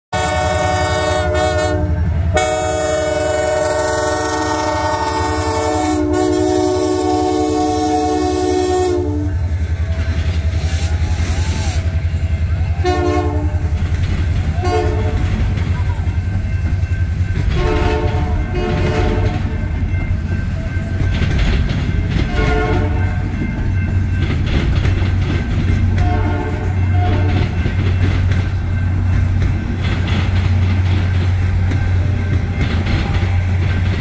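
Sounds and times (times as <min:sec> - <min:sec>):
locomotive air horn: 0:00.1 - 0:09.8, 0:12.7 - 0:13.8, 0:14.5 - 0:15.6, 0:17.4 - 0:19.7, 0:22.2 - 0:23.4, 0:25.9 - 0:27.7
train cars clattering on rails: 0:00.2 - 0:34.0.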